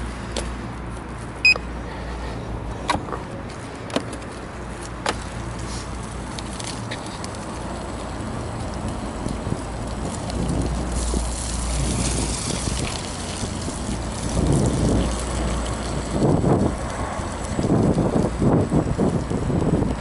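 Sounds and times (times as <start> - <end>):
electric unicycle riding rumble: 0.0 - 20.0.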